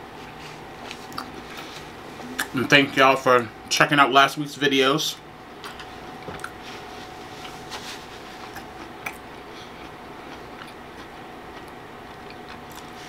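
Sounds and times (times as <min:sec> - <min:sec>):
steady background hum: 0:00.0 - 0:13.0
close-miked chewing: 0:00.8 - 0:01.8, 0:08.4 - 0:13.0.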